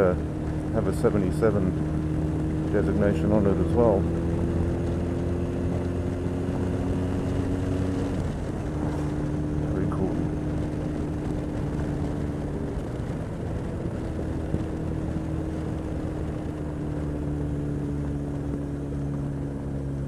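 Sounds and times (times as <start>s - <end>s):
motorcycle engine cruising: 0.0s - 20.0s
wind rush: 4.1s - 17.7s.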